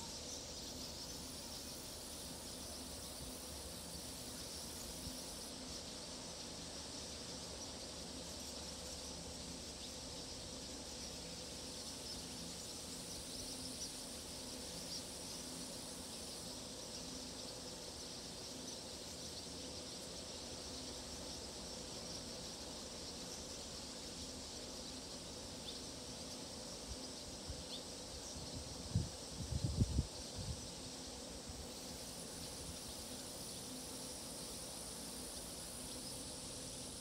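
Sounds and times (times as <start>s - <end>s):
crickets chirping: 0.0s - 37.0s.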